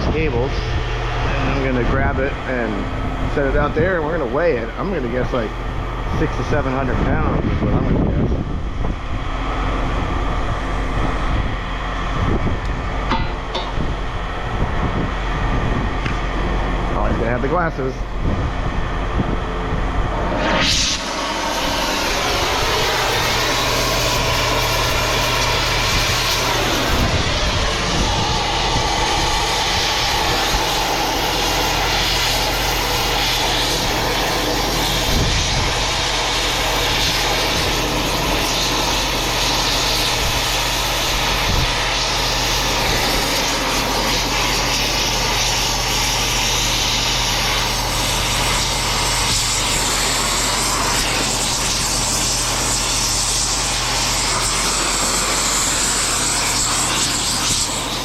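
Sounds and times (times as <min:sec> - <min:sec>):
low engine hum: 0:00.0 - 0:46.2
cutting torch roaring: 0:00.0 - 0:58.0.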